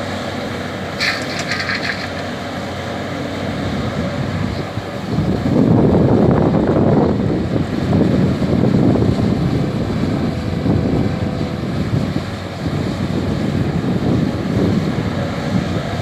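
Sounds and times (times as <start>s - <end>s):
excavator diesel engine running: 0.0s - 16.0s
wind buffeting microphone: 0.6s - 16.0s.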